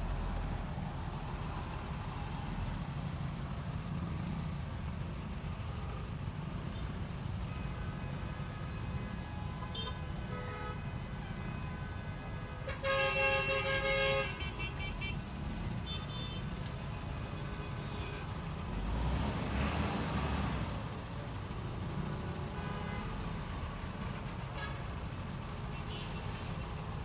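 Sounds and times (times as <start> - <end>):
vehicle horn: 9.0 - 15.2, 22.5 - 23.2, 24.5 - 24.9.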